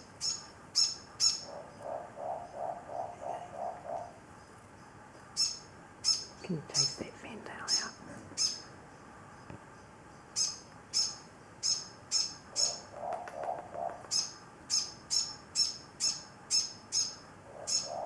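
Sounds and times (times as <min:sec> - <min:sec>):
owl high-pitched chirps: 0:00.2 - 0:04.2, 0:05.4 - 0:06.4, 0:07.7 - 0:08.7, 0:10.4 - 0:18.0.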